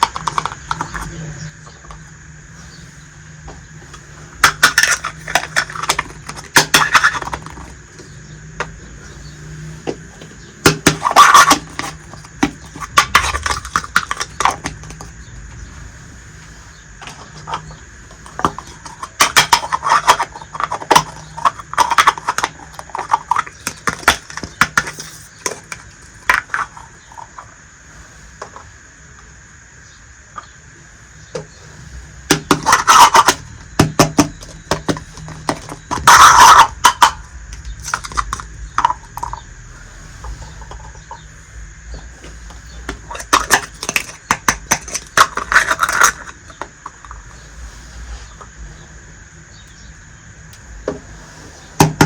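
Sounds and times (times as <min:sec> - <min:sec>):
toy pieces clicking and rattling: 0:00.0 - 0:01.1, 0:04.4 - 0:07.9, 0:10.7 - 0:15.1, 0:17.0 - 0:27.3, 0:32.3 - 0:39.4, 0:43.1 - 0:47.2.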